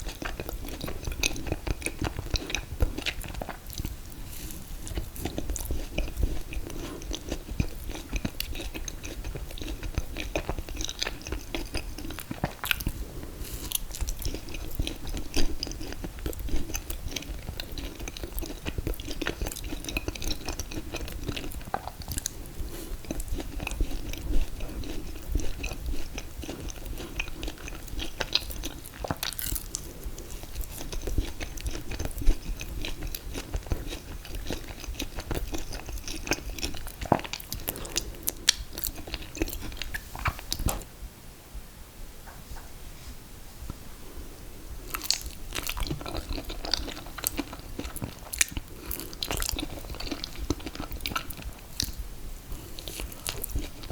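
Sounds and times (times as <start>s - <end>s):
chewing and mouth sounds: 0.0s - 40.9s, 44.8s - 53.9s.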